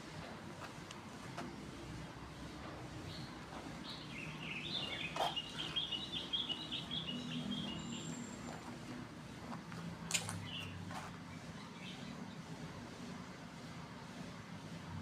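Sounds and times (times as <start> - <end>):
bird twittering: 3.8 - 8.3
sharp click: 10.1 - 10.5.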